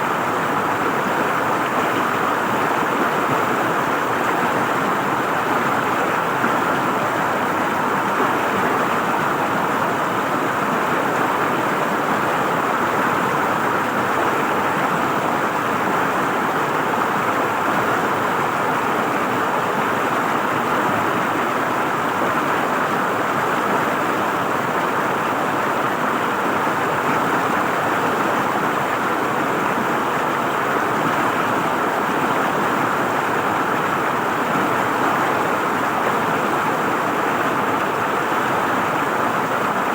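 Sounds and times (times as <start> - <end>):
river water flowing and gurgling: 0.0 - 39.9.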